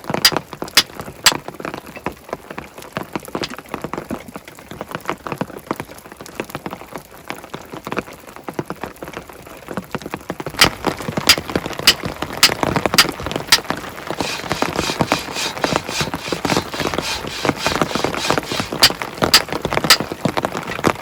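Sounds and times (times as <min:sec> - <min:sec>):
rain pattering: 0:00.0 - 0:14.3
sharp taps: 0:14.2 - 0:20.0.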